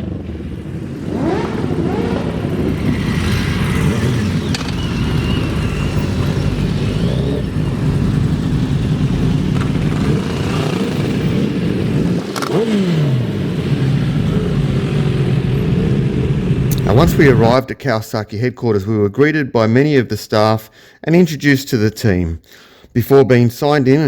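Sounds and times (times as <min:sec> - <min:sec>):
motorcycle engines running: 0:00.0 - 0:17.6.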